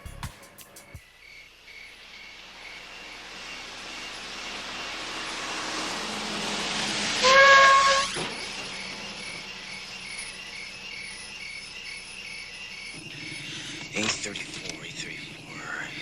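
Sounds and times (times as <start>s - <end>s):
crickets chirping: 0.0s - 5.9s, 8.0s - 16.0s
hissing rush: 2.3s - 11.4s
whistle-like tone: 7.2s - 13.4s.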